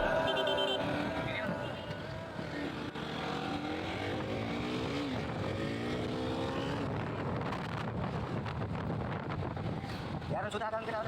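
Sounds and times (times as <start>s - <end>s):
motorcycle engine accelerating: 0.0s - 7.9s
road and wind noise: 0.0s - 11.0s.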